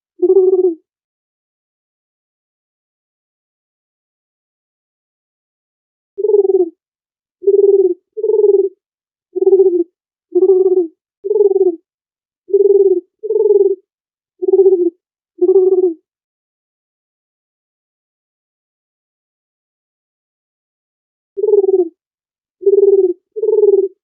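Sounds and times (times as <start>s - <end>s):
dove cooing: 0.2s - 0.8s, 6.2s - 6.8s, 7.4s - 8.8s, 9.4s - 11.8s, 12.5s - 13.8s, 14.4s - 16.0s, 21.4s - 22.0s, 22.6s - 24.0s.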